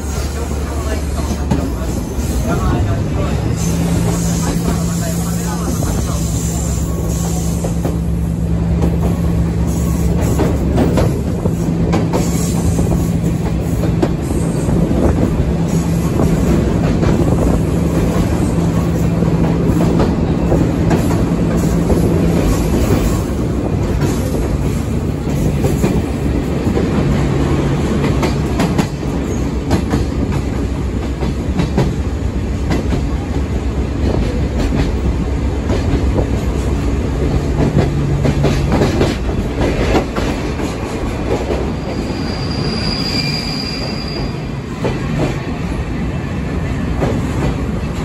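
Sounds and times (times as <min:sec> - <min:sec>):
train wheels rumbling on rail: 0:00.0 - 0:48.0
high squeal: 0:41.8 - 0:44.6.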